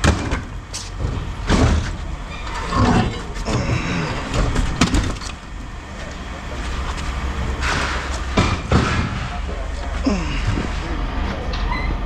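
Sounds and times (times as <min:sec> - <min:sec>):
engine running: 0:00.0 - 0:11.6
heavy objects knocking: 0:02.8 - 0:05.8.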